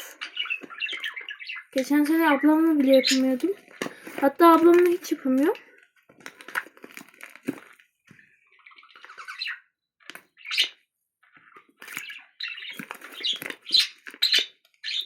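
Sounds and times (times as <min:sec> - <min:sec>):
small birds chirping and squawking: 0:00.0 - 0:05.5, 0:08.3 - 0:15.0.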